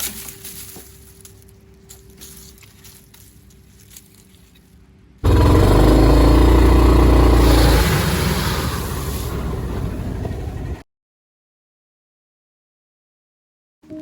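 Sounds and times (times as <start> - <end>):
engine running loudly: 5.2 - 10.8.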